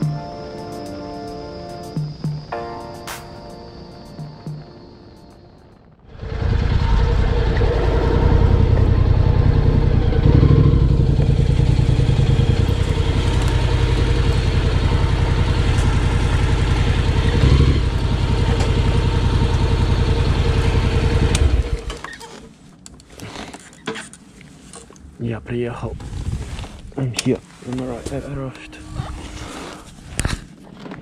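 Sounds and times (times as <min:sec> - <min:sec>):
motorcycle engine running: 0:06.1 - 0:21.9.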